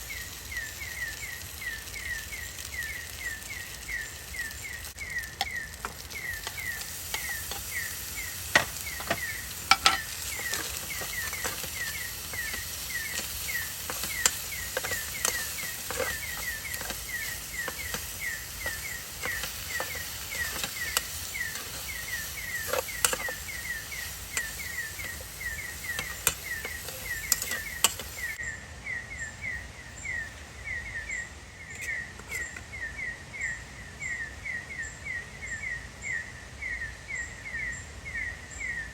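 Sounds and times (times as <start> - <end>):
campfire crackling: 0.0 - 28.4
high chirping call: 0.0 - 33.6.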